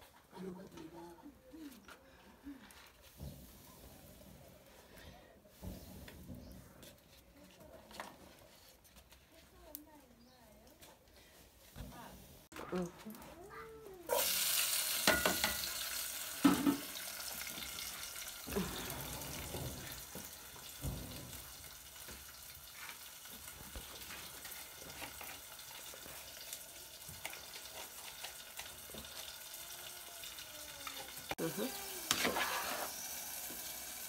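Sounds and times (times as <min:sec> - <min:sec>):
vegetables sizzling in a pot: 0:14.0 - 0:34.0.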